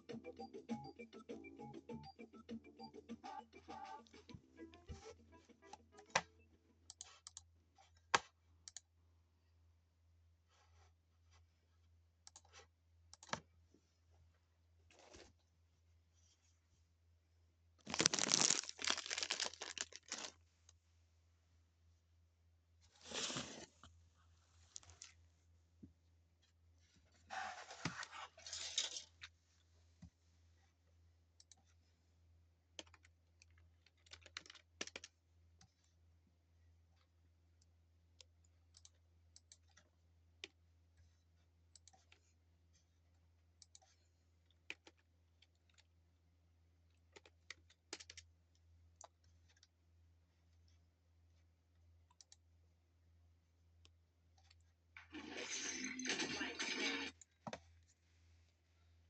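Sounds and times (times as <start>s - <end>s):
rustling: 17.8s - 20.4s.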